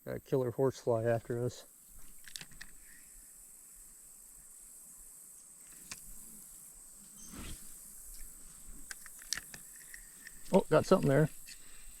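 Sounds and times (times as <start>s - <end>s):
insects chirring: 0.0s - 12.0s
faint clicks: 8.1s - 10.5s.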